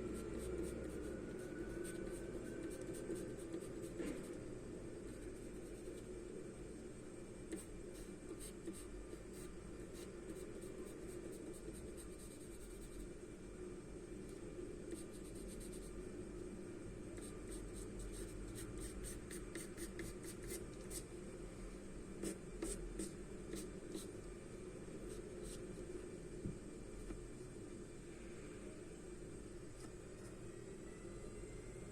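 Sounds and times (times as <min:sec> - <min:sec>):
steady low hum: 0:00.0 - 0:31.9
pencil scratching on paper: 0:00.2 - 0:04.3, 0:07.5 - 0:13.0.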